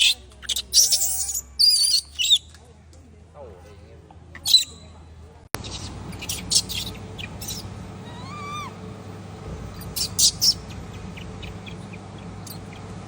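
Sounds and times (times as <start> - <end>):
macaque squeals: 0.0 - 2.4, 4.4 - 4.8, 5.6 - 8.8, 9.8 - 12.9.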